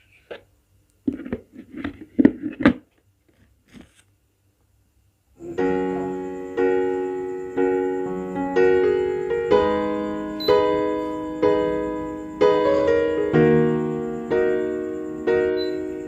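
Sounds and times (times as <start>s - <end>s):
piano chords: 5.4s - 16.0s.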